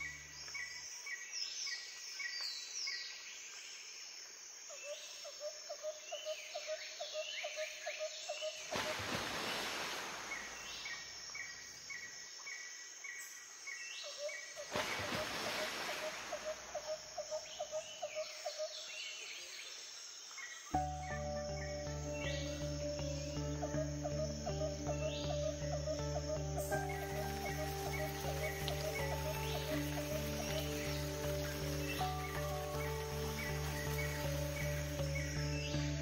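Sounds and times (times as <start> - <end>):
birds chirping: 14.0 - 36.0
rapid pulsing bird call: 14.2 - 18.9, 20.8 - 36.0.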